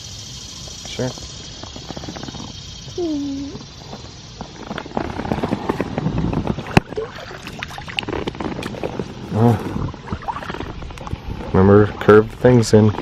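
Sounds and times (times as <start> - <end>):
paddle blades splashing in water: 6.4 - 13.0.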